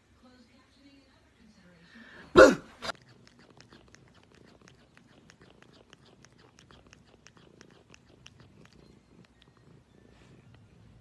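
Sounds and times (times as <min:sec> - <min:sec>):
cat purring: 0:02.8 - 0:11.0.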